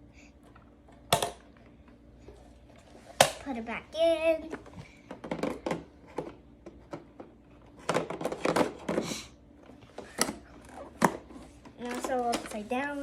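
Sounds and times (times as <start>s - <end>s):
plastic clicks and knocks: 4.5s - 9.0s.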